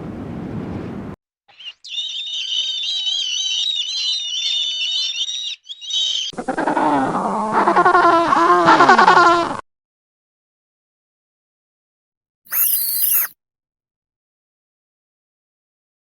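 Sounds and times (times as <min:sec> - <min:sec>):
high wavering animal squeaking: 0:01.6 - 0:06.3, 0:12.5 - 0:13.3
low whining animal call: 0:12.5 - 0:13.3.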